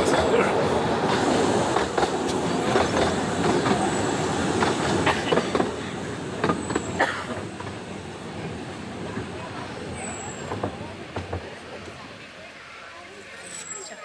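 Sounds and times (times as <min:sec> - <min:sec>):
train wheels rumbling: 0:00.0 - 0:14.0
high wheel squeal: 0:13.3 - 0:14.0.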